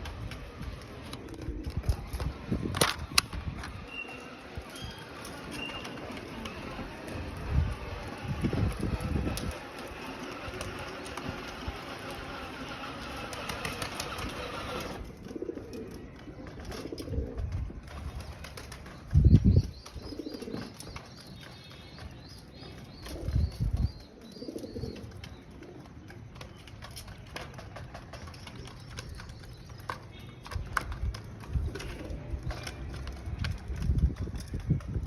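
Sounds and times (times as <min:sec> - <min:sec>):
pigeons cooing: 0:00.1 - 0:02.7, 0:03.6 - 0:19.0, 0:19.6 - 0:21.1, 0:22.5 - 0:26.8, 0:31.4 - 0:33.2.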